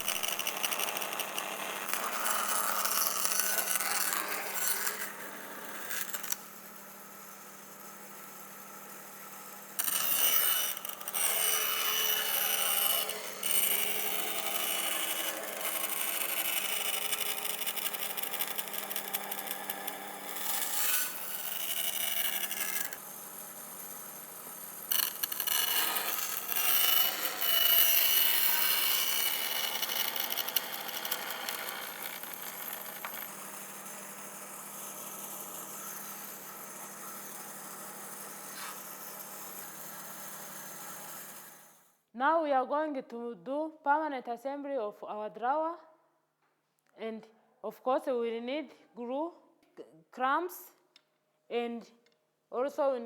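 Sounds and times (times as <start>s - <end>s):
bandsaw cutting plywood: 0.0s - 41.6s.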